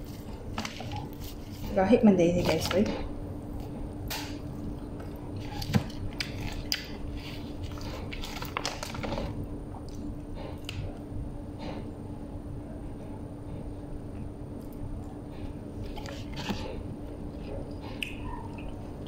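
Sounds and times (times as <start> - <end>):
person chewing with wet smacks: 4.4 - 11.1, 14.2 - 19.0.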